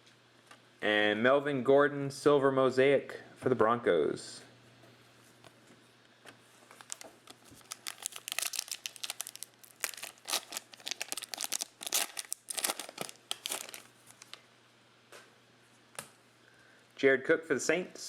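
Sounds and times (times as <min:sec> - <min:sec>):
foil wrapper crinkling and tearing: 0:06.7 - 0:14.4.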